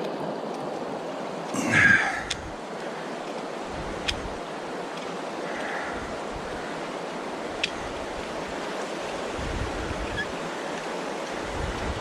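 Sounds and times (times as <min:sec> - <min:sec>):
wind buffeting microphone: 0:03.4 - 0:12.0.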